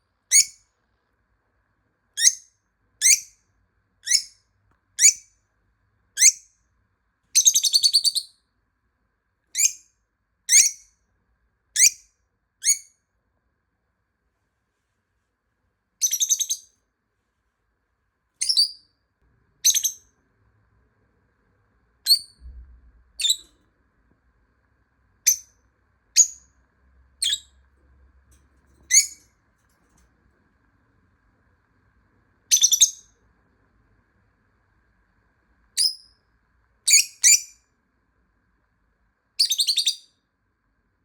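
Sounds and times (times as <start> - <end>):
lovebird shrill chirps: 0.3 - 0.6, 2.2 - 3.3, 4.0 - 4.4, 5.0 - 5.2, 7.4 - 8.3, 9.6 - 9.8, 10.5 - 10.9, 11.8 - 12.0, 12.6 - 12.9, 16.0 - 16.7, 18.4 - 18.9, 19.6 - 20.1, 22.0 - 22.4, 23.2 - 23.5, 25.2 - 25.5, 26.2 - 26.5, 27.2 - 27.5, 28.9 - 29.3, 32.5 - 33.1, 35.8 - 36.1, 36.9 - 37.6, 39.4 - 40.1.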